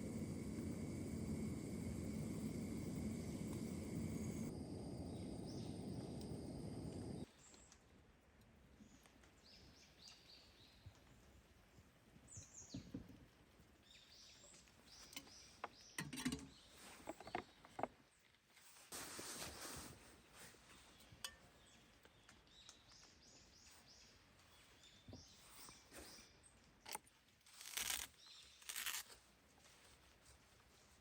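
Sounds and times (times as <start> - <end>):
low rushing noise: 0.0 - 7.3
small birds chirping: 0.0 - 7.8.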